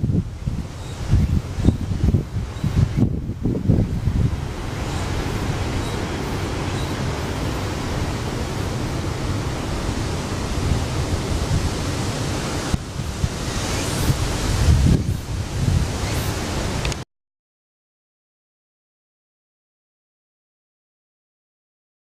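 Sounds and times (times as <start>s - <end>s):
strong wind rushing: 0.0s - 17.0s.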